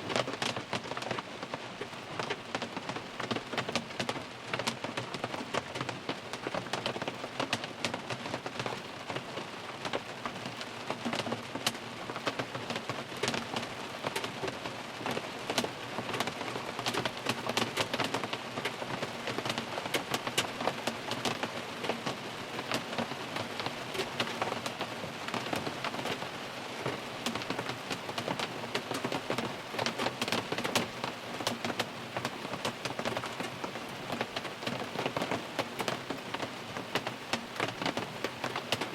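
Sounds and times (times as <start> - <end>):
rain pattering on a car: 0.0 - 38.9
raindrop taps: 26.8 - 38.9.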